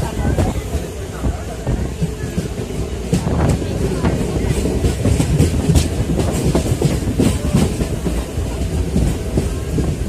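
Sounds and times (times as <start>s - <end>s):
train rumble: 0.0s - 10.0s
wheels clacking over rail joints: 1.8s - 10.0s.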